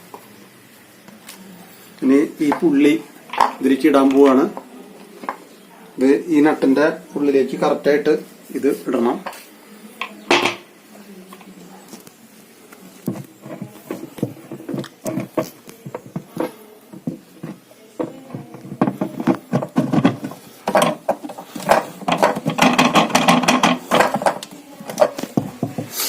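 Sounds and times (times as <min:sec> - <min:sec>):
pulley clicking and knocking: 0:13.2 - 0:25.1.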